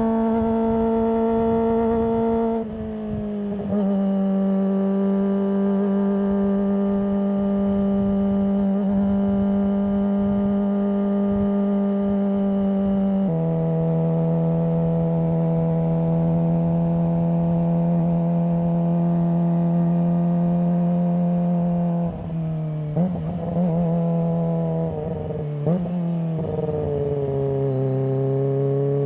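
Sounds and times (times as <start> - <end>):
motorcycle engine exhaust note: 0.0 - 29.0.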